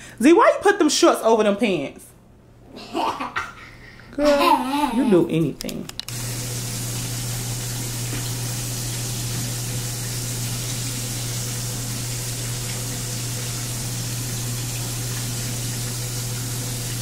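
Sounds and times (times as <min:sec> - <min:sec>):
fish frying in hot oil: 0:06.1 - 0:17.0.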